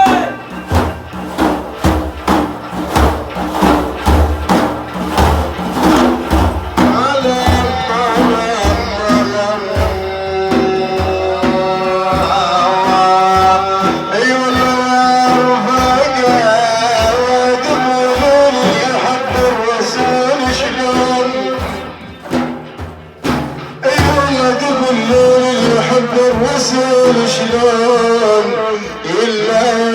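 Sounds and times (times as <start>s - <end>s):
hand drum beats: 0.0s - 29.9s
man singing chant: 6.8s - 22.2s, 23.8s - 29.9s.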